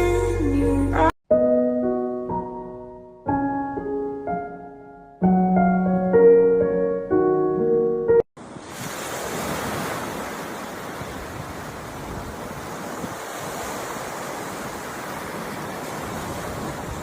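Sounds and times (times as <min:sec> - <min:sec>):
slow gentle piano music: 0:00.0 - 0:08.3.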